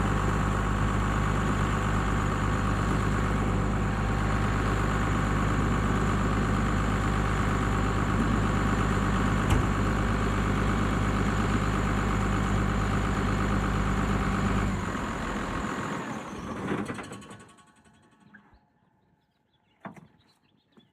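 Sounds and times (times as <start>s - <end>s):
tractor diesel engine idling: 0.0s - 16.5s.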